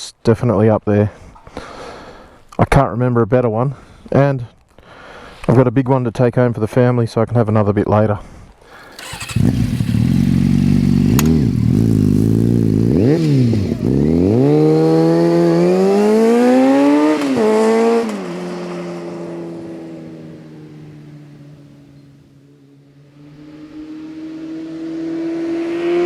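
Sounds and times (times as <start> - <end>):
motorcycle engine revving: 8.8 - 22.1, 23.0 - 26.0.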